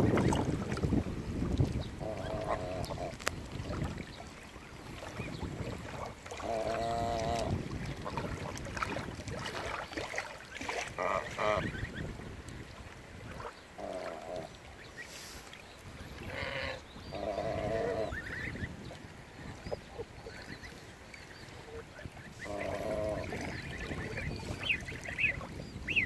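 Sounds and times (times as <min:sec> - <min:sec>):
wind rumble on microphone: 0:00.0 - 0:14.9, 0:15.8 - 0:26.0
goslings peeping: 0:01.6 - 0:04.2, 0:04.9 - 0:12.2, 0:16.0 - 0:26.0
geese honking: 0:21.7 - 0:26.0.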